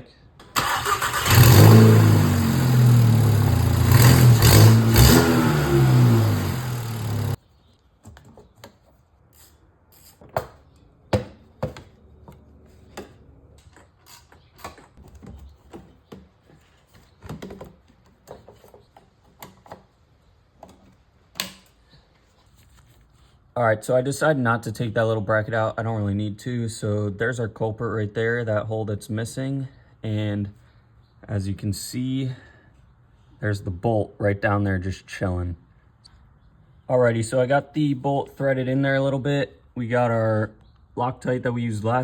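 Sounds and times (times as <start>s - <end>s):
car engine revving: 0.6s - 7.4s.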